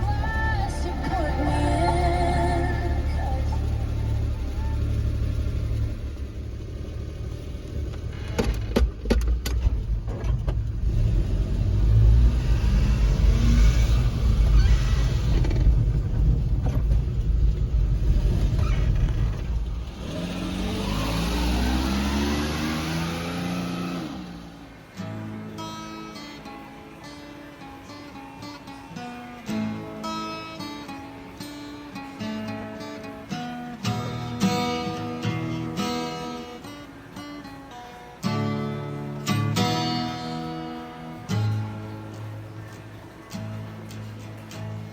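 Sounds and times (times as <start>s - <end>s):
small truck engine running: 0.0s - 26.0s.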